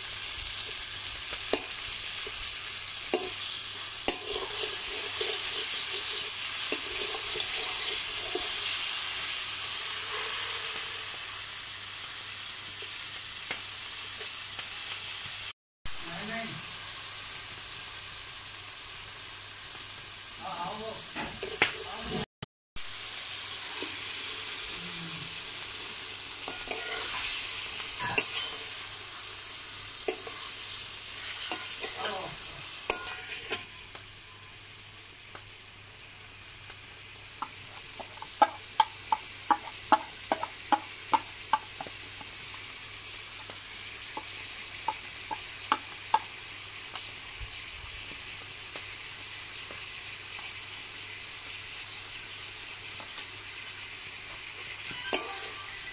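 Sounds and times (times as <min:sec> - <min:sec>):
chicken sizzling in a pan: 0:00.0 - 0:55.9
metal spatula scraping: 0:03.1 - 0:11.3, 0:26.4 - 0:29.3, 0:30.0 - 0:34.4, 0:54.9 - 0:55.9
spatula knocking against pan: 0:37.4 - 0:42.3.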